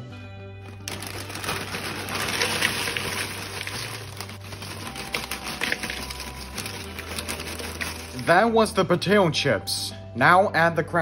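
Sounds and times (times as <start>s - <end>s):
chips pouring into a bowl: 0.6s - 8.6s.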